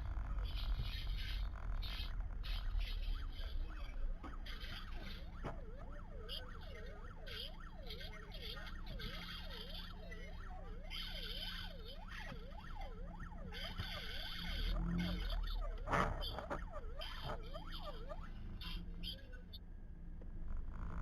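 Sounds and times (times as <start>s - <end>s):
emergency vehicle siren yelping: 0.9s - 19.6s.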